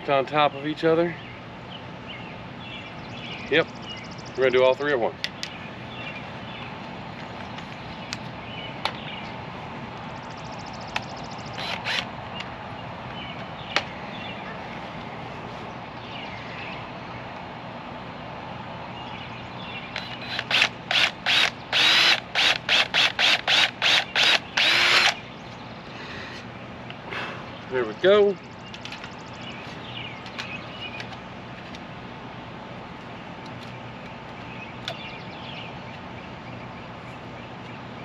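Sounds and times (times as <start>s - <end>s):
power drill boring through metal: 20.0s - 25.2s.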